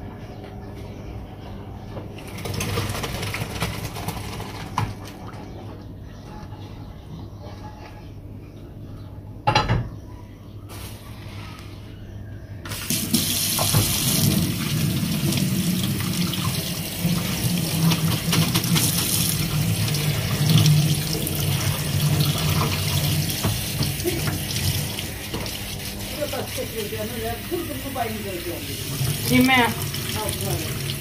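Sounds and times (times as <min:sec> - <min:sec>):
tap water running into sink: 0:12.7 - 0:26.7, 0:28.6 - 0:31.0.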